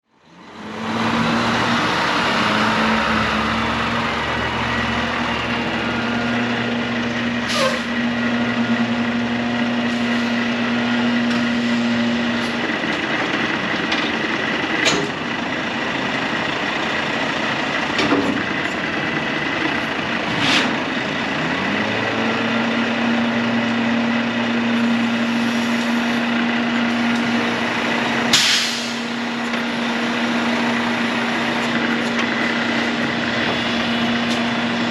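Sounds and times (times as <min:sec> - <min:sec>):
truck diesel engine humming: 0:00.1 - 0:34.9
short hisses: 0:28.4 - 0:29.1.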